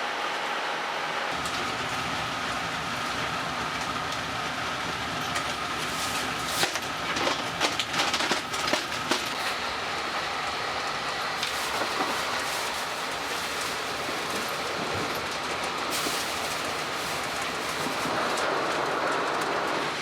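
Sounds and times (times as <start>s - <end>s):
train running on rails: 0.0s - 20.0s
wheels clacking over rail joints: 5.2s - 10.2s, 11.0s - 20.0s.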